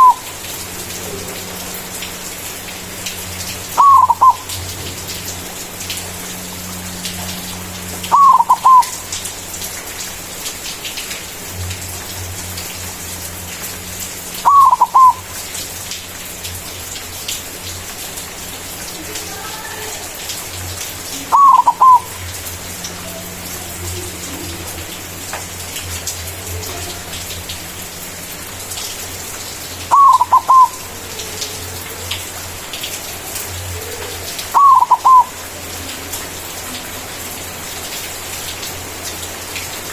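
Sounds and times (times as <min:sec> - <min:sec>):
dove cooing: 0:00.0 - 0:00.3, 0:03.8 - 0:04.6, 0:08.1 - 0:09.0, 0:14.4 - 0:15.3, 0:21.2 - 0:25.4, 0:29.9 - 0:32.2, 0:33.6 - 0:36.1.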